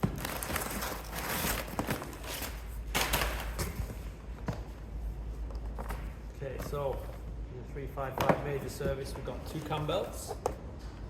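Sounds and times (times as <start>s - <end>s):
packaging rustling in cardboard box: 0.0s - 3.1s.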